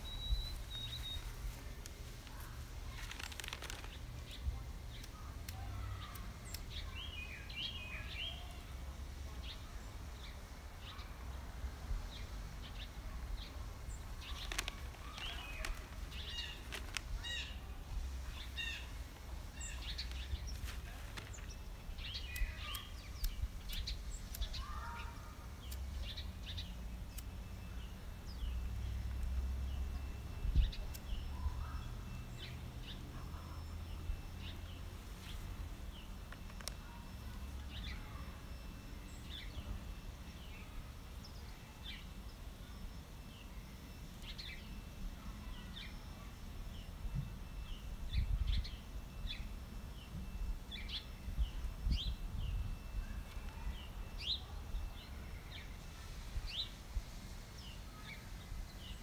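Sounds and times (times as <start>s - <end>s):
songbirds chirping and calling: 0.0s - 59.0s.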